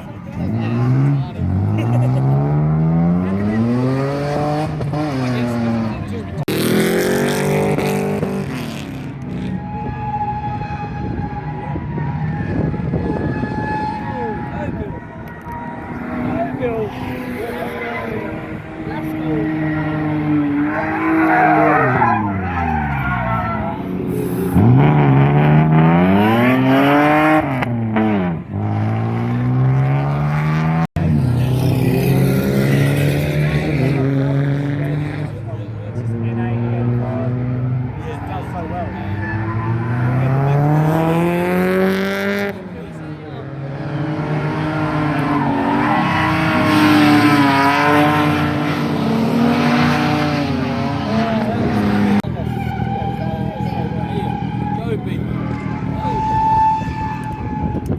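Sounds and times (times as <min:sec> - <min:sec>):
car engine revving: 0:00.0 - 0:57.9
tyres squealing: 0:03.3 - 0:27.6, 0:36.6 - 0:57.9.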